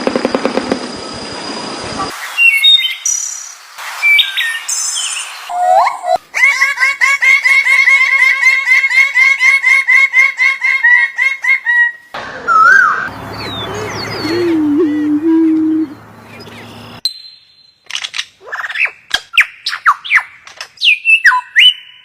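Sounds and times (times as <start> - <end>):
bird whistled calls: 2.2 - 6.2, 12.5 - 14.8, 18.6 - 22.0
bird chirping: 12.5 - 22.0.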